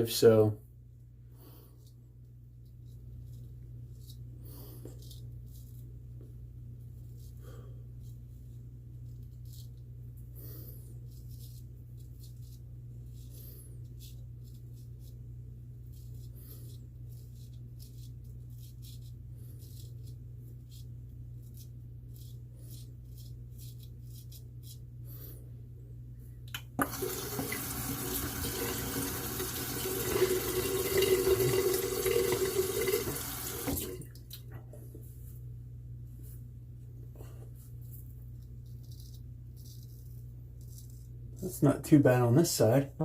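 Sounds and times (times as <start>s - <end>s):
water running into sink: 26.8s - 34.2s.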